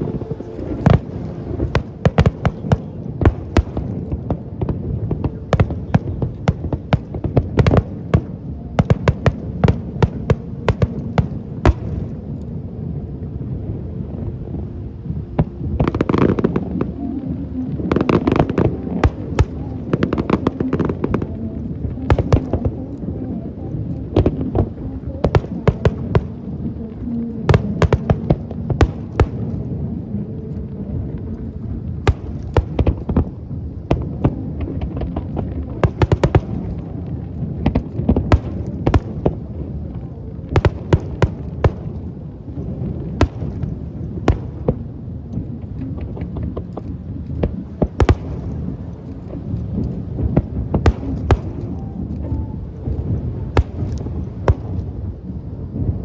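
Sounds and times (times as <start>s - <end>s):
fireworks bangs and cracks: 0.0s - 12.4s, 31.0s - 56.0s
low rumble: 0.0s - 56.0s.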